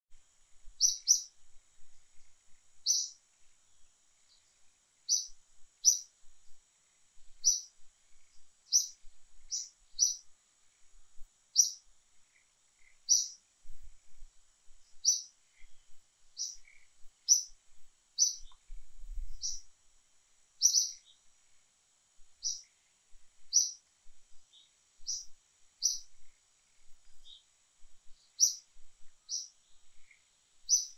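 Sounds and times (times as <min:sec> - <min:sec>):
faint high hiss: 0:00.1 - 0:30.9
bird chirping: 0:00.8 - 0:01.4, 0:02.1 - 0:06.6, 0:07.4 - 0:10.3, 0:11.5 - 0:13.8, 0:14.8 - 0:17.6, 0:18.2 - 0:19.7, 0:20.6 - 0:21.3, 0:22.4 - 0:22.8, 0:23.4 - 0:30.9.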